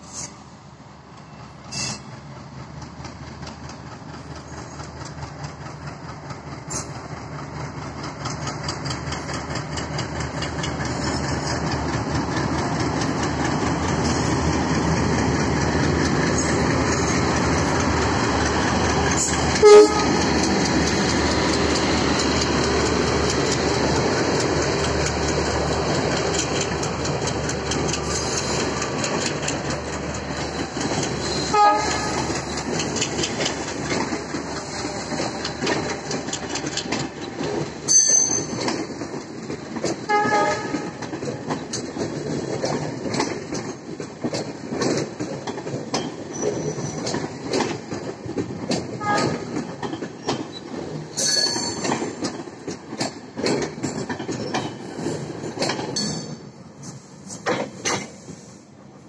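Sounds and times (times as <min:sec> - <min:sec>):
diesel train passing: 0:00.0 - 0:59.0
train horn blast: 0:19.6 - 0:20.2, 0:31.5 - 0:32.3, 0:40.1 - 0:41.0, 0:49.0 - 0:49.5.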